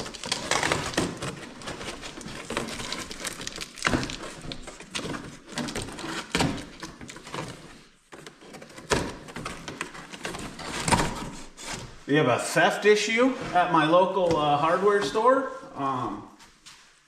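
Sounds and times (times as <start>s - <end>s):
cardboard and tape tearing: 0.0s - 12.0s.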